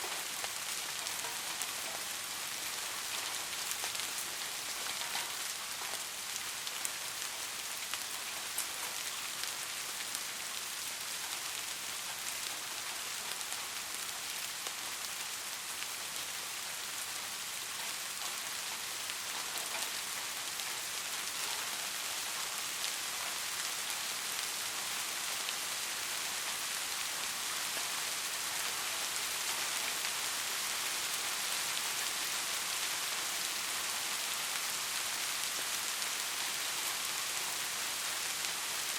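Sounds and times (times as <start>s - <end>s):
rain hissing on foliage: 0.0s - 38.9s
raindrop ticks: 0.2s - 6.1s, 17.8s - 23.0s.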